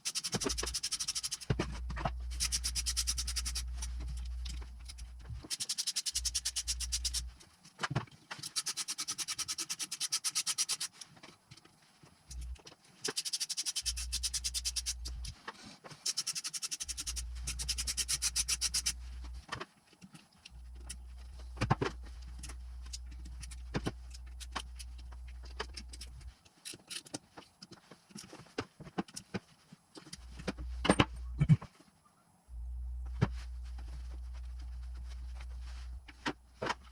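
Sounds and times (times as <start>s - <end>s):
ratchet wrench clicking: 0.0s - 1.5s, 2.3s - 3.9s, 4.8s - 7.3s, 8.4s - 10.9s, 12.3s - 15.3s, 16.0s - 19.0s.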